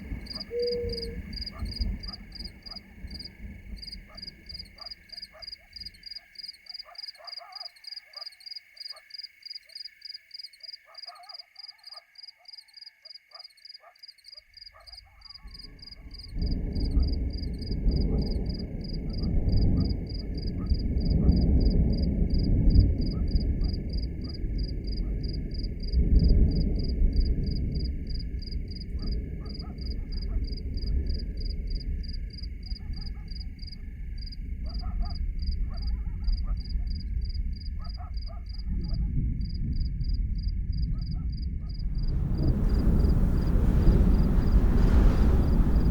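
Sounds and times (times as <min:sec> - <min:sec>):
loud low rushing rumble: 0:41.9 - 0:45.9.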